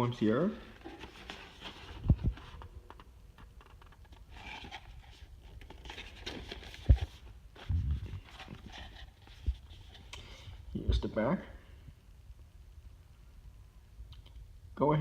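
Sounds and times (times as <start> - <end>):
cardboard box rustling in hands: 0.7 - 3.0, 4.1 - 10.0
dull low thumps: 7.7 - 8.3.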